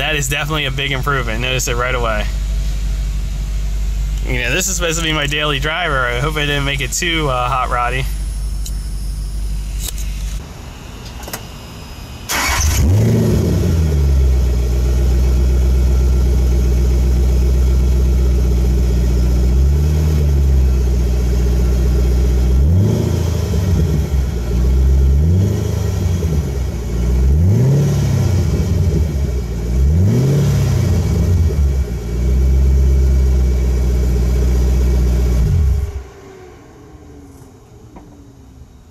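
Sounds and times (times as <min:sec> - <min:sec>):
car engine starting and idling: 0:00.0 - 0:38.9
car engine revving: 0:12.3 - 0:38.6.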